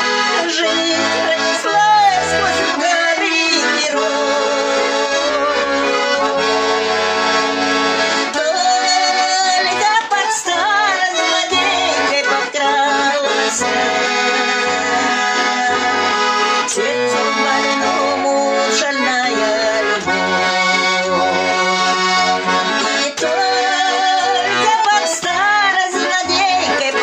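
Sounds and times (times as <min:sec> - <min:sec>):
button accordion playing: 0:00.0 - 0:27.0.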